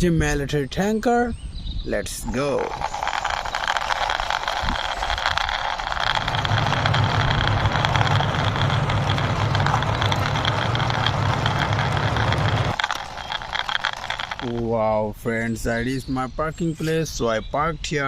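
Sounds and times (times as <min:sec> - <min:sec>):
toy truck wheels rolling: 0:02.2 - 0:14.8.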